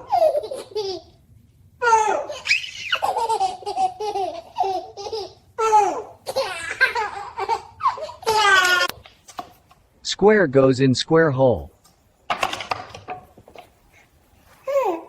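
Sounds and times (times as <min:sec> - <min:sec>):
baby laughing: 0:00.0 - 0:01.2, 0:01.8 - 0:08.9, 0:14.6 - 0:15.0.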